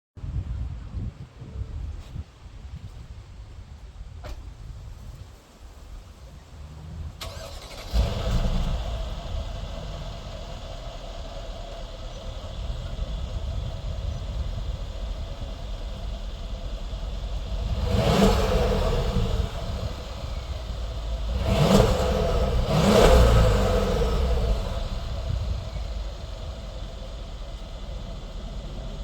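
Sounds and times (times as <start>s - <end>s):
car engine idling: 4.4s - 29.0s
engine revving: 6.6s - 29.0s.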